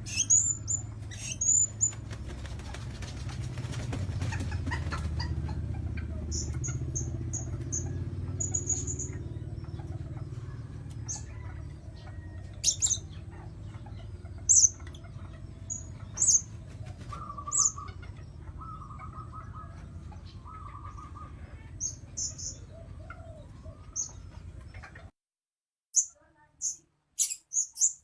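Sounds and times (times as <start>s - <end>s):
parrot chirping: 26.0s - 28.0s.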